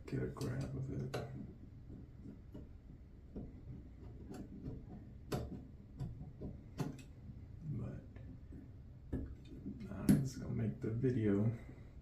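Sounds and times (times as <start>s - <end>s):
fingernail scratching tape: 1.0s - 7.1s.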